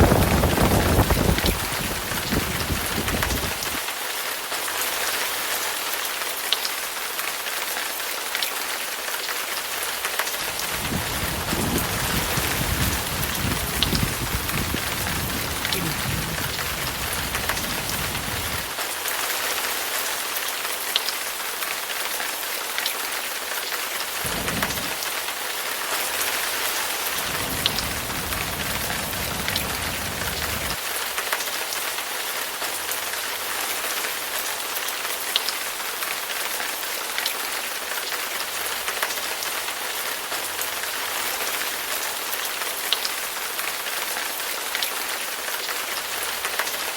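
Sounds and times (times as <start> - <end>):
low thunder rumbling: 0.0 - 3.8, 10.4 - 18.7, 24.2 - 25.3, 27.0 - 30.8
heavy rain falling: 0.0 - 46.9
sharp raindrops striking close: 0.0 - 46.9.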